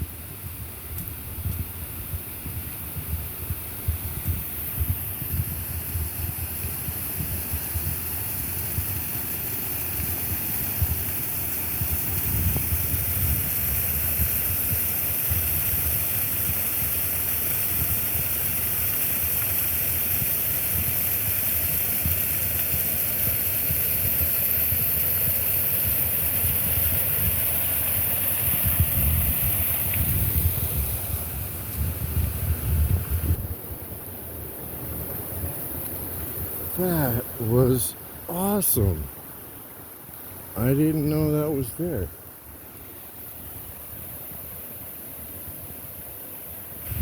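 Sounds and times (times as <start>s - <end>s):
wind on microphone: 0.0s - 9.0s, 11.8s - 14.8s, 28.4s - 34.0s
waterfall roaring: 33.8s - 39.1s.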